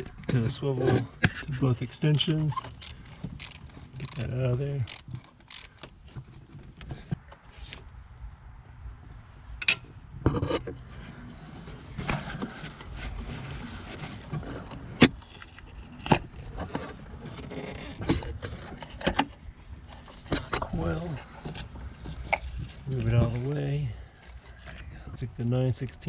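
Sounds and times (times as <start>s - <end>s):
ratchet clicking: 2.1s - 5.9s
metallic clicks knocks and scrapes: 2.1s - 6.2s.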